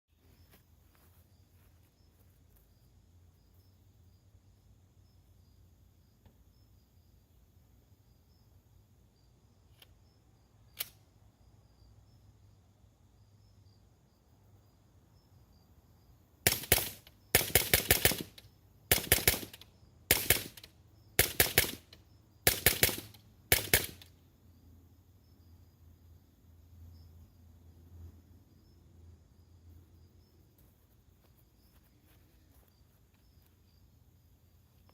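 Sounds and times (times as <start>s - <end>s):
crickets chirping: 0.1s - 34.9s
sharp click: 10.7s - 11.0s
suppressed rifle shots: 16.5s - 24.1s.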